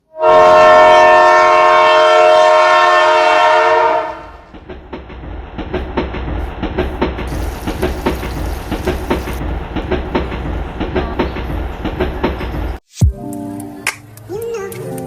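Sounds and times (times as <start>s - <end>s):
loud horn chord: 0.0s - 4.4s.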